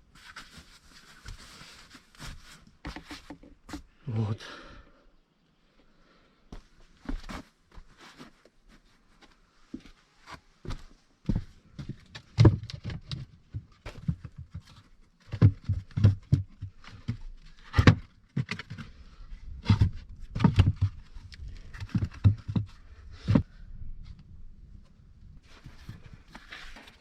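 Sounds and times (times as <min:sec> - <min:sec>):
objects knocking and thudding: 0:12.2 - 0:18.8, 0:19.6 - 0:23.5.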